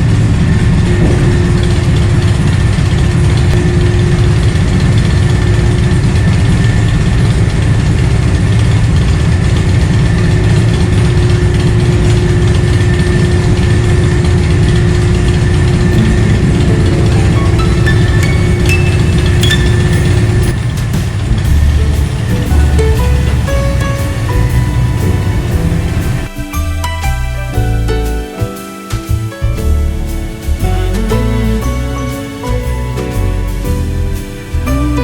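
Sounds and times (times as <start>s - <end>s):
large engine rumbling: 0.0s - 26.4s, 29.6s - 35.0s
faint high whine: 15.9s - 26.3s.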